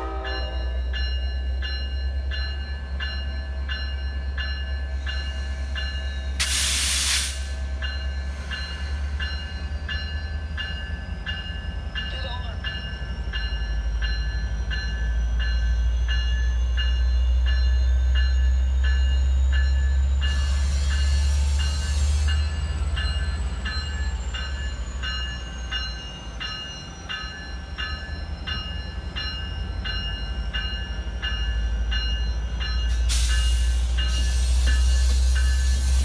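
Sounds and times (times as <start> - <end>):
diesel locomotive rumble: 0.0 - 36.0
short bursts of hiss: 6.4 - 7.6.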